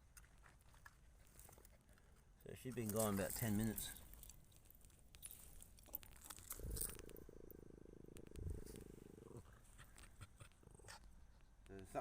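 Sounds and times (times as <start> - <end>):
muffled dog growl: 6.6 - 11.1.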